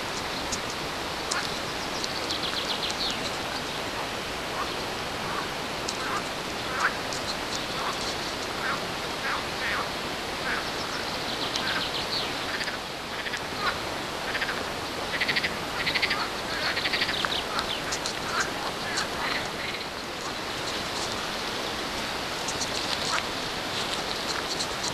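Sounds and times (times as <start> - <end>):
steady hiss: 0.0 - 24.9
rapid rattling animal calls: 4.6 - 9.8, 12.5 - 21.7.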